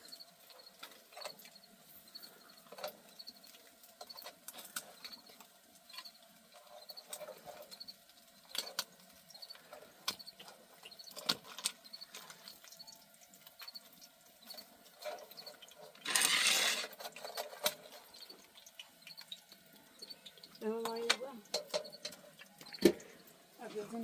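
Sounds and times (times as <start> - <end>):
faint high chirp: 18.1 - 21.1, 21.8 - 23.3.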